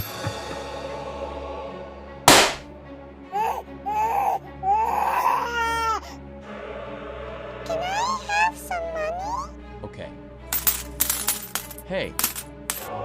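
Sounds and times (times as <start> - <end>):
background music: 0.0 - 13.0
loud sharp crack: 2.3 - 2.7
high voice sobbing: 3.3 - 6.2.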